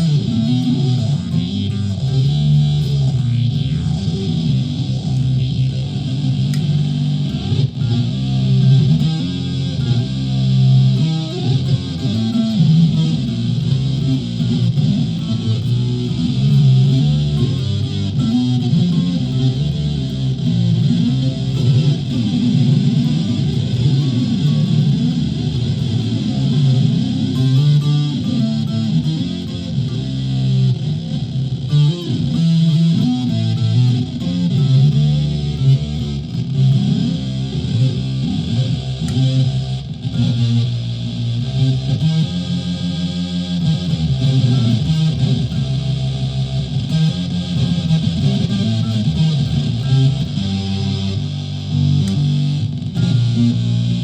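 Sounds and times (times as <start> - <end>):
distorted electric ukulele: 0.0 - 54.0.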